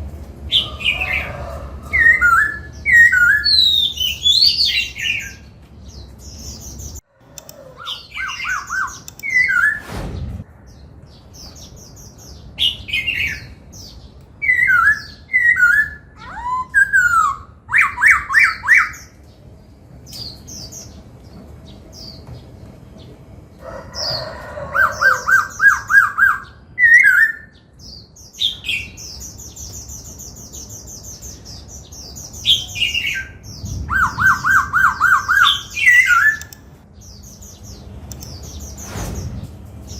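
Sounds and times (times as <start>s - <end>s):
bird singing whistled phrases: 2.0s - 5.4s, 14.4s - 19.0s, 32.5s - 36.6s.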